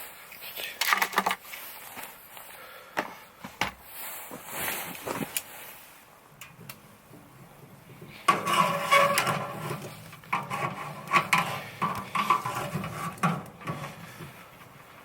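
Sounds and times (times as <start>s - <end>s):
metal cookware clattering: 8.3s - 14.3s.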